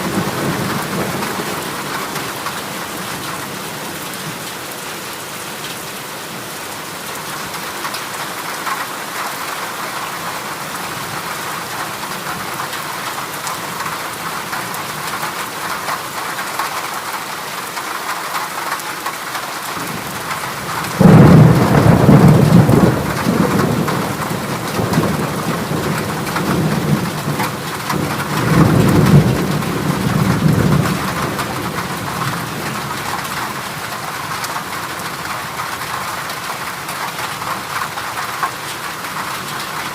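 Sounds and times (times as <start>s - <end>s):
heavy rain on a metal roof: 0.0s - 39.9s
thunder rumbling: 19.8s - 35.2s.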